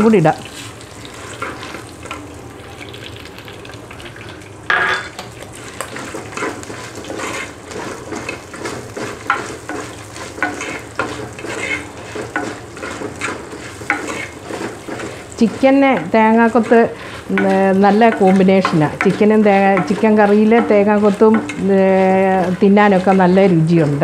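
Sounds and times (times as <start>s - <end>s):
food sizzling in hot oil: 0.0s - 24.0s
ladle scraping clay pot: 5.9s - 24.0s.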